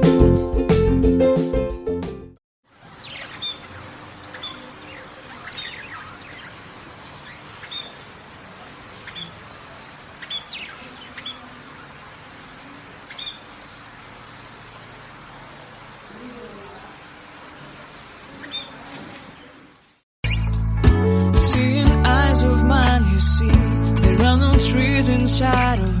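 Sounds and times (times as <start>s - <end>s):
background hiss: 2.7s - 20.0s
songbird chirping: 2.8s - 16.5s, 17.7s - 19.6s.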